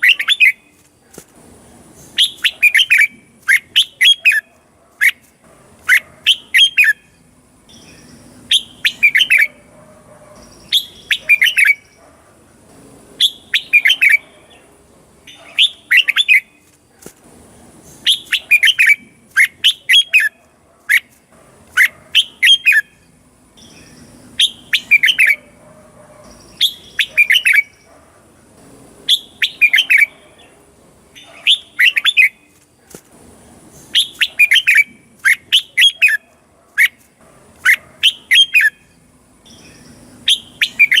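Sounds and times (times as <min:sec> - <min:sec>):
bulbul singing warbling phrases: 0:05.9 - 0:09.6, 0:10.4 - 0:12.0, 0:13.2 - 0:14.7, 0:17.9 - 0:20.4, 0:21.8 - 0:25.6, 0:26.3 - 0:27.9, 0:29.1 - 0:30.6, 0:33.8 - 0:36.2, 0:37.6 - 0:41.0.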